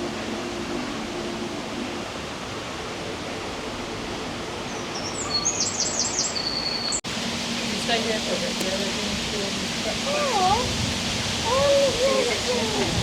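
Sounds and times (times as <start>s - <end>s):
rushing background noise: 7.1s - 13.0s.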